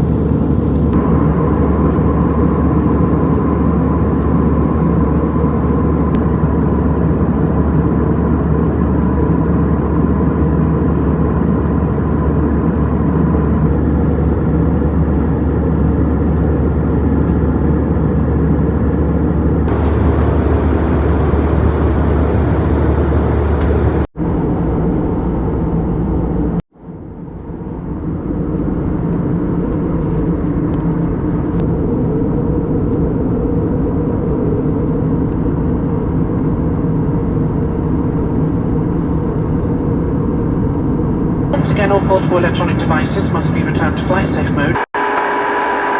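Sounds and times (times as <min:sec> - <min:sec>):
aircraft cabin engine rumble: 0:00.0 - 0:24.1, 0:27.6 - 0:44.9
faint steady hum: 0:19.7 - 0:24.1.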